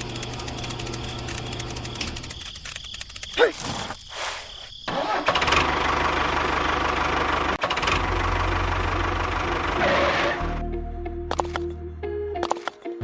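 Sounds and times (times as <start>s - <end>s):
small engine running: 0.0s - 3.8s, 4.9s - 10.5s, 11.3s - 11.7s, 12.4s - 12.8s
music: 9.6s - 13.0s.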